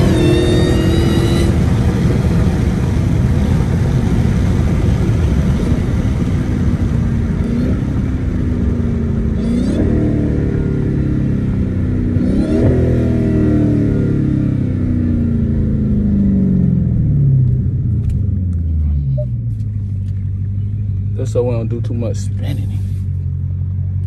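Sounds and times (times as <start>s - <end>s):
car engine rumbling: 0.0s - 24.0s
supercharger whine: 0.0s - 24.0s.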